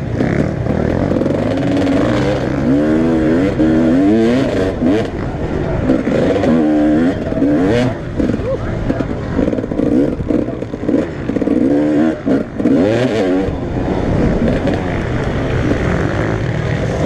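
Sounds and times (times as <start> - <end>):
motocross motorcycle engines revving: 0.0 - 17.0.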